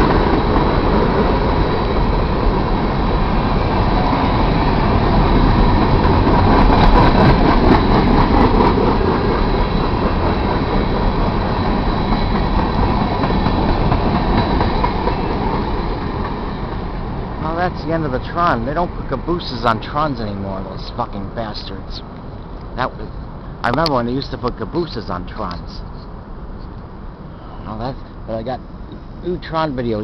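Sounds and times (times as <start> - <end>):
freight train rumble and rail clatter: 0.0 - 30.0
faint high whine: 15.0 - 30.0.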